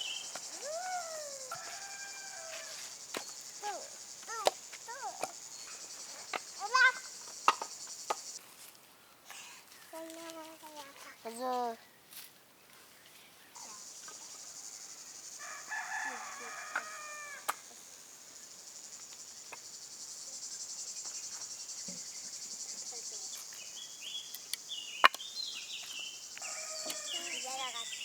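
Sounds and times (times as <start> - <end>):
short chirping calls: 0.0 - 8.4
insects chirring: 0.0 - 28.0
rooster crowing: 0.6 - 3.0, 15.4 - 17.6, 26.4 - 27.6.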